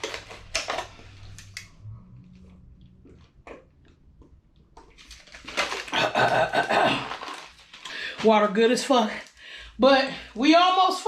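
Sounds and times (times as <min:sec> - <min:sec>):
person drinking water: 0:02.4 - 0:08.1.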